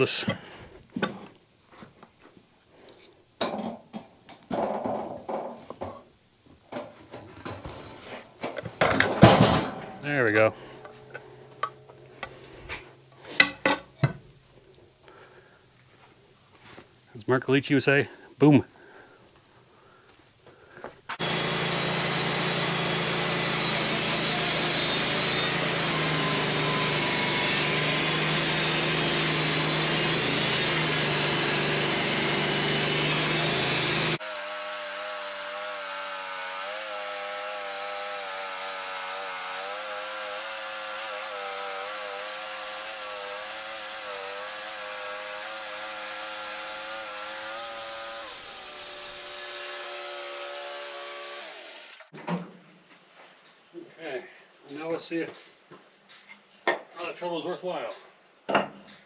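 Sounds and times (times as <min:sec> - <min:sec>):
band sawmill sawing log: 0:21.1 - 0:52.1.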